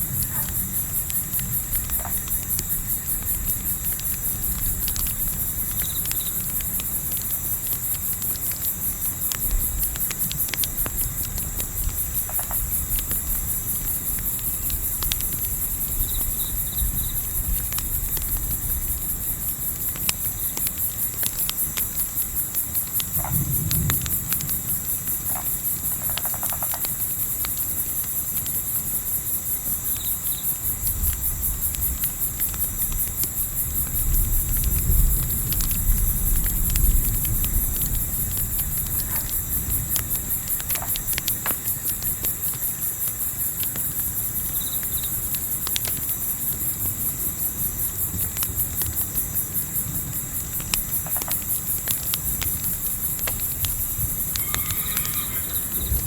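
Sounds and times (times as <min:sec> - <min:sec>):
campfire crackling: 0:00.0 - 0:56.0
crickets chirping: 0:00.0 - 0:56.0
low wind rumble: 0:30.7 - 0:41.1, 0:49.8 - 0:56.0.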